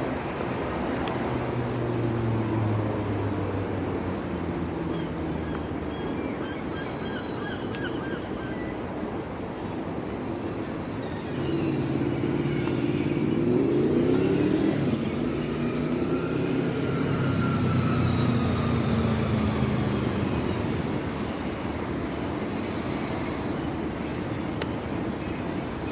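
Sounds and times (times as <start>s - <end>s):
vehicle engine passing by: 0.0s - 6.1s, 11.2s - 23.4s.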